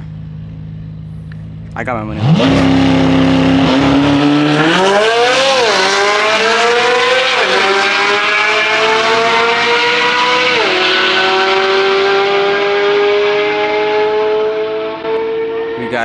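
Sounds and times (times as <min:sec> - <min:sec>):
race car engine accelerating: 0:00.0 - 0:16.0.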